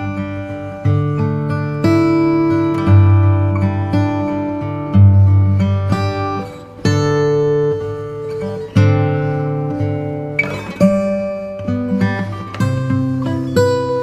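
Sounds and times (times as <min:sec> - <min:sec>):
acoustic guitar strummed chords: 0:00.0 - 0:14.0.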